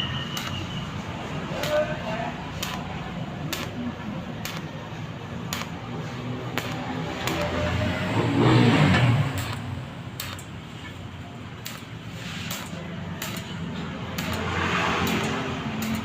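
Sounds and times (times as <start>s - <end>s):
sharp clicks: 0.3s - 0.8s, 1.5s - 1.9s, 2.6s - 4.8s, 5.4s - 7.7s, 8.9s - 10.6s, 11.6s - 16.0s.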